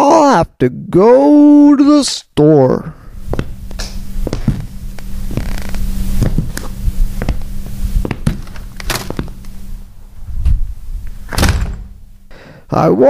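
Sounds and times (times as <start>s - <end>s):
steady low hum: 2.6s - 13.0s.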